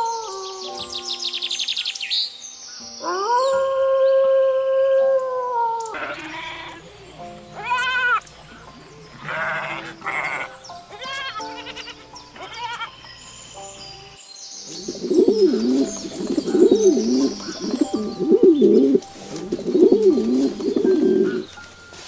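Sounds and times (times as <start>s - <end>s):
wolf howling: 0.0s - 1.7s, 3.0s - 6.9s
soft background music: 0.0s - 22.0s
short quavering bleats: 6.0s - 6.8s, 9.2s - 12.9s.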